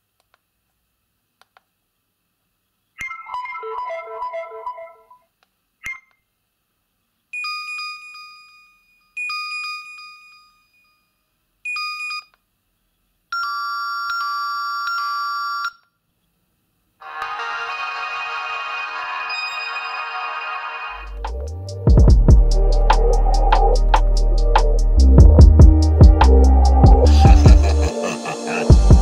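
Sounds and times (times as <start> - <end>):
steady electronic tone: 17.0 - 28.0
chime tones: 19.3 - 21.1.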